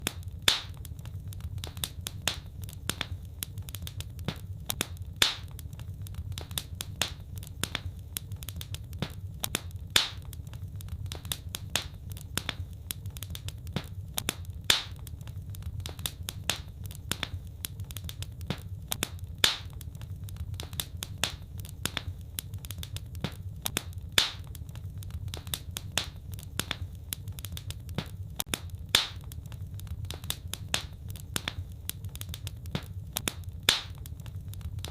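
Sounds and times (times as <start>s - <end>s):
fireplace fire crackling: 0.0s - 34.9s
loud fire pops: 0.0s - 34.9s
steady low rumble: 0.0s - 34.9s.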